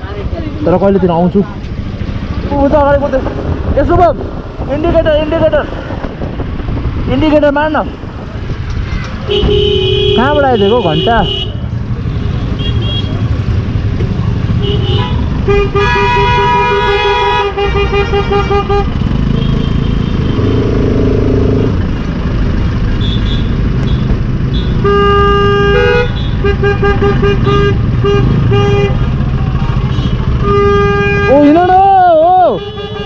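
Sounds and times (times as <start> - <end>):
road traffic rumble: 0.0 - 33.0
vehicle horn beeping: 9.3 - 11.6, 14.6 - 18.9, 23.0 - 29.0, 29.9 - 31.6.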